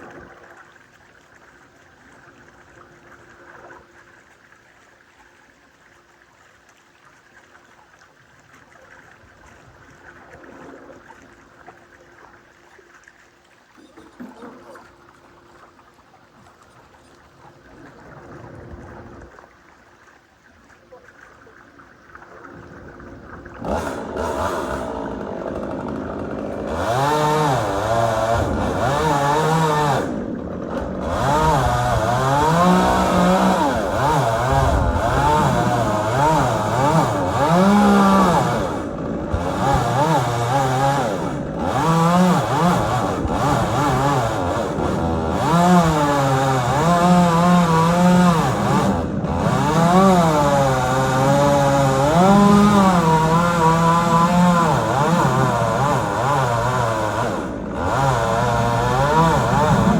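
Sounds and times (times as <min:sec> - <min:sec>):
chainsaw cutting wood: 0:23.6 - 0:59.9.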